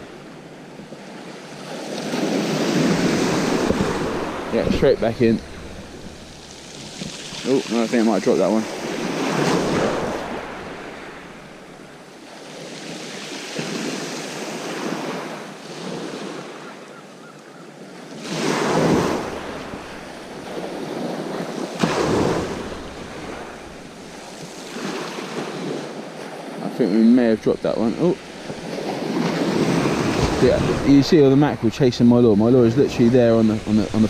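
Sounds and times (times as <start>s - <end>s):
sea waves breaking: 0.0s - 34.0s
wind buffeting microphone: 2.1s - 12.0s, 27.2s - 34.0s.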